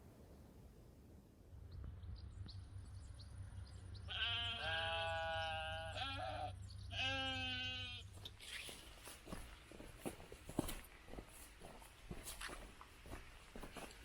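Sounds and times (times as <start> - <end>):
steady low rumble: 0.9 - 11.1
livestock bleating: 4.1 - 8.2.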